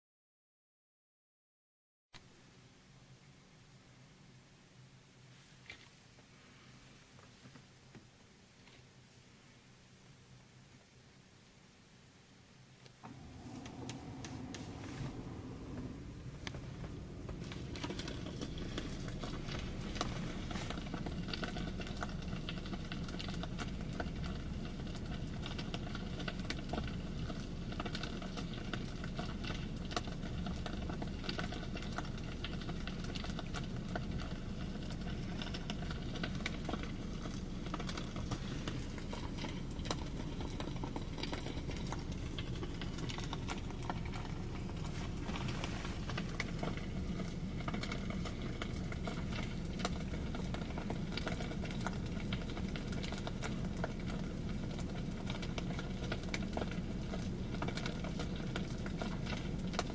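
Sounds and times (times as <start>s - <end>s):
crackling fire sound effect: 12.9s - 59.9s.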